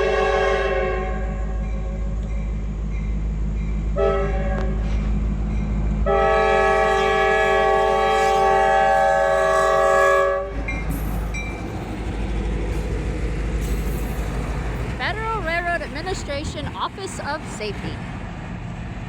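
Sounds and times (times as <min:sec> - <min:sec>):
diesel locomotive horn blast: 0:00.0 - 0:02.0, 0:04.0 - 0:05.0, 0:06.0 - 0:10.7
locomotive rumbling past: 0:00.0 - 0:19.0.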